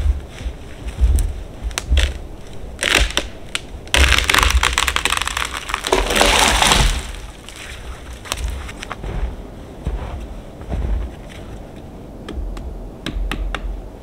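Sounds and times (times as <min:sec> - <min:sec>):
wind on microphone: 0:00.0 - 0:04.7
sharp crackles: 0:00.0 - 0:09.0
dense crunching: 0:00.0 - 0:11.5.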